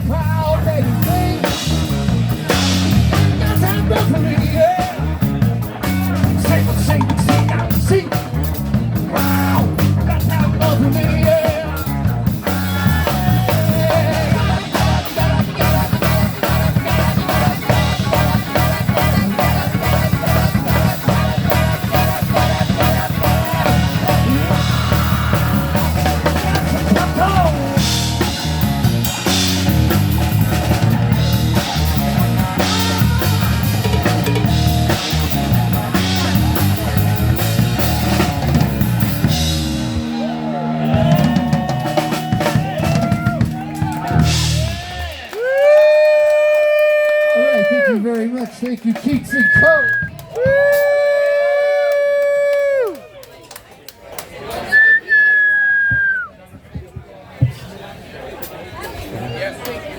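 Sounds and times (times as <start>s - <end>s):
guitar: 0.0s - 45.6s
bass line: 0.0s - 48.0s
drum kit: 0.0s - 53.0s.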